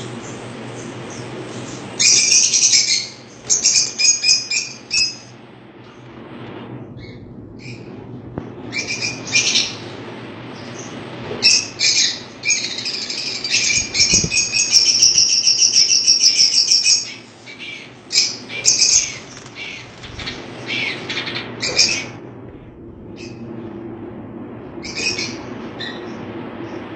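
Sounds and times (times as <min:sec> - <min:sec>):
birds chattering rapidly: 0:10.6 - 0:22.2
birds chirping: 0:10.6 - 0:22.2.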